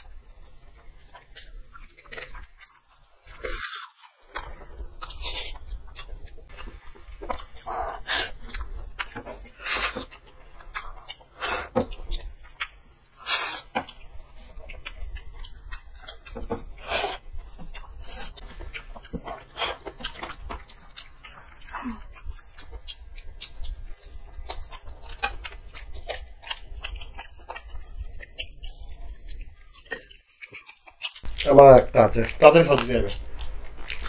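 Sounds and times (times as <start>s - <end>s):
people chewing fried chicken: 0.0s - 34.0s
sharp crunches: 24.0s - 34.0s.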